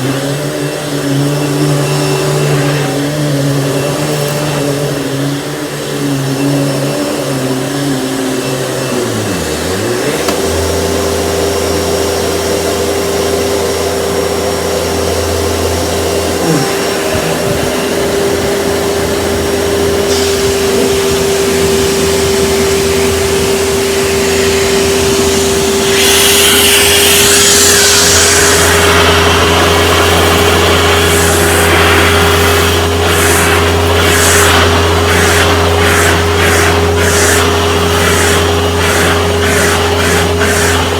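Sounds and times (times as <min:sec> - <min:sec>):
vacuum cleaner motor whine: 0:00.0 - 0:40.9
loud hiss: 0:16.3 - 0:40.9.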